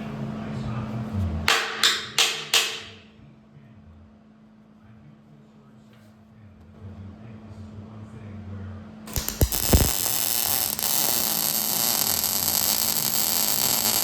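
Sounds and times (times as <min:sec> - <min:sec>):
electrical hum: 0:09.1 - 0:14.0
welding arc hissing and crackling: 0:09.1 - 0:14.0.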